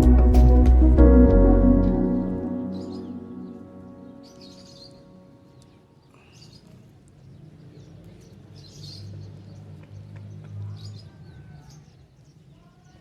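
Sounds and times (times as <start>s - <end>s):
small birds chirping: 2.7s - 13.0s.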